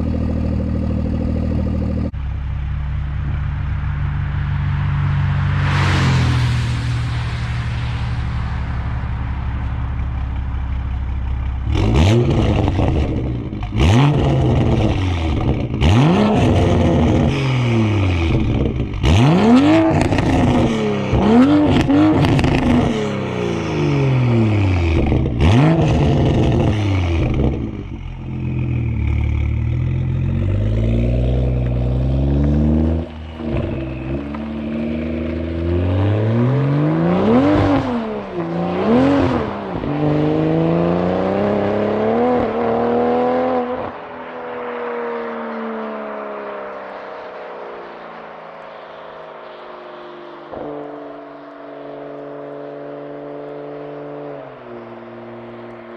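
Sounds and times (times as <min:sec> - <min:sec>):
exhaust cracks: 0:00.0 - 0:36.5
loud car exhaust revving: 0:00.0 - 0:43.9.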